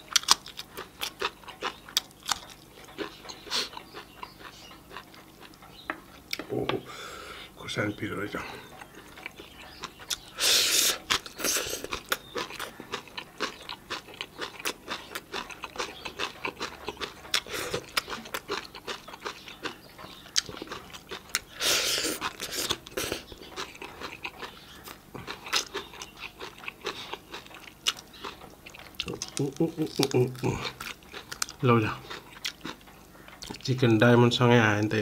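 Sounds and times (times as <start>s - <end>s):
crunching raw cabbage: 9.0s - 33.7s.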